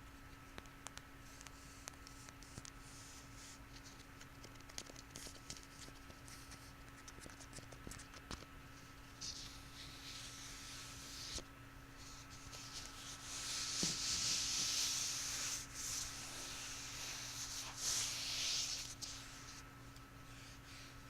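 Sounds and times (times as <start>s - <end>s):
rubbing on a surface: 9.2s - 19.7s.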